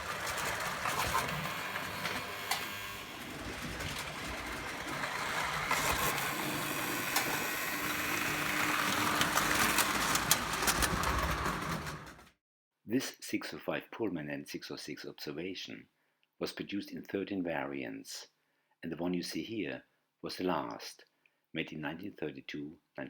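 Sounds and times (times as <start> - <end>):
toy train whirring rattle: 0.0 - 12.2
wheel clicks: 0.0 - 12.3.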